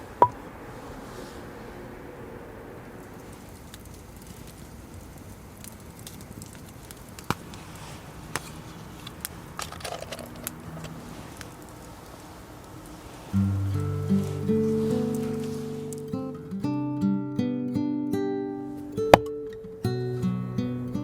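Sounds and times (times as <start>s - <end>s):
campfire crackling: 3.1s - 16.8s.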